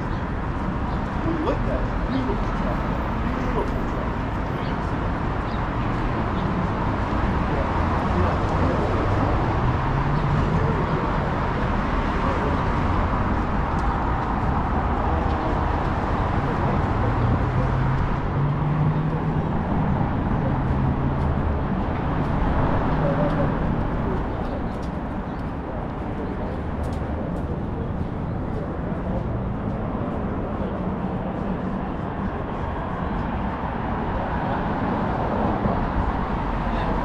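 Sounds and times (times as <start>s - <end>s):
passing vehicle engines humming: 0.0s - 37.0s
road traffic noise: 0.0s - 37.0s.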